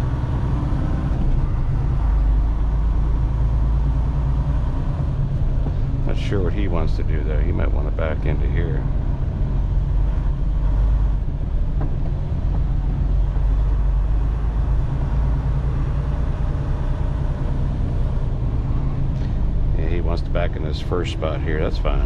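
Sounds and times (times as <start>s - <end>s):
diesel truck engine rumbling: 0.0s - 22.0s.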